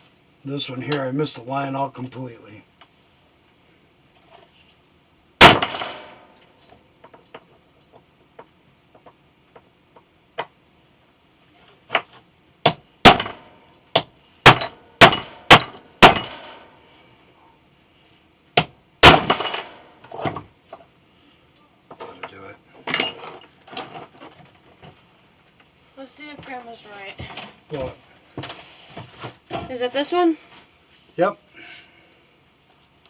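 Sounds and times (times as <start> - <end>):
metal-on-metal knocks ringing: 5.4 - 6.2, 13.0 - 13.5, 14.5 - 16.6, 19.0 - 19.9.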